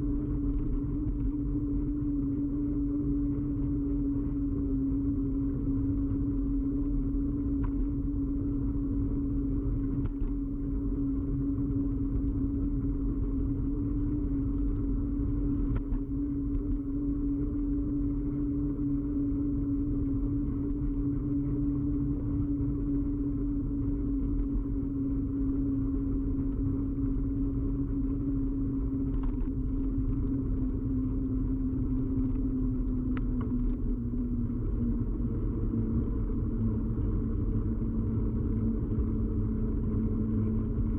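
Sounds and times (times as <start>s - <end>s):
bicycle ride rumble: 0.0s - 40.9s
droning hum: 0.0s - 40.9s
faint ticks: 32.2s - 34.8s.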